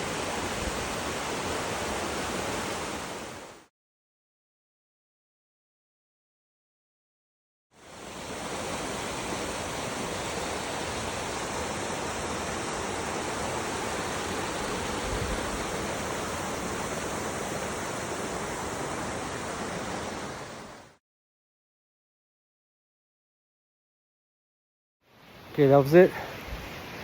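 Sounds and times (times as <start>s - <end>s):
waterfall roaring: 7.9s - 20.9s.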